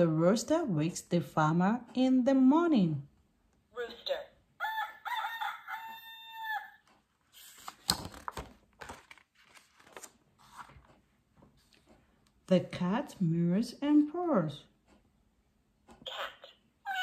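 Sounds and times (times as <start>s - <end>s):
recorded rooster crowing: 4.6s - 6.9s
paper page turning: 7.3s - 11.0s.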